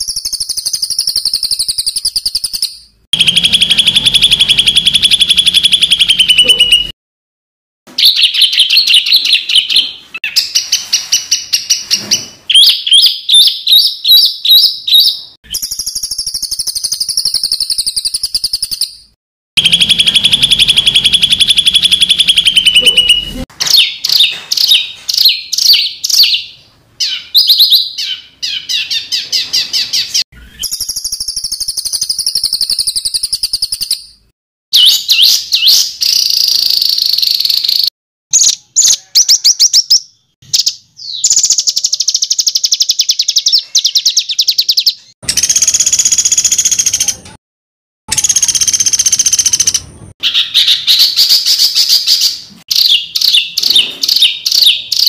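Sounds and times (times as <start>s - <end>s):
songbird trills and harsh notes: 0.0s - 6.9s, 7.9s - 34.2s.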